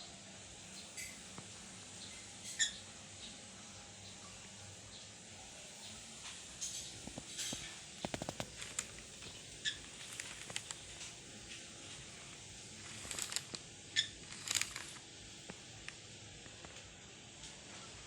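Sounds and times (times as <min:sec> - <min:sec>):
small clicks: 0:06.6 - 0:16.8.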